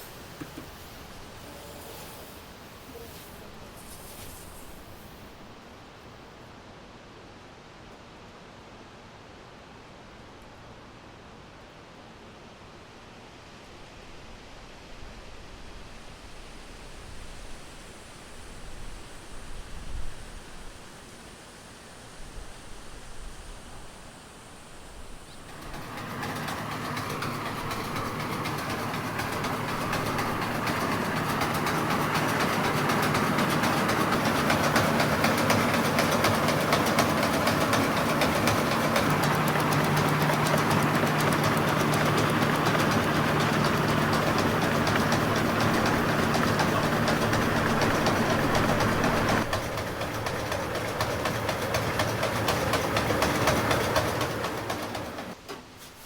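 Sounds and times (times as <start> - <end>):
engine running: 0.0 - 5.5, 25.1 - 55.5
loud mechanical rattle: 25.4 - 55.4.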